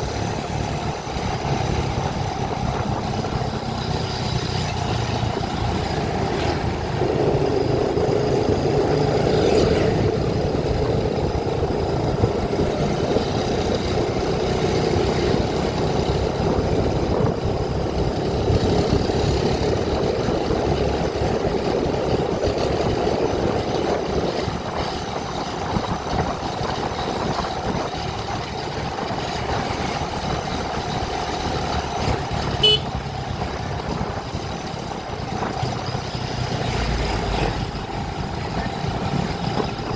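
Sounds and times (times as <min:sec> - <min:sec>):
vehicle engine and road noise: 0:00.0 - 0:39.9
short horn beep: 0:32.5 - 0:33.0.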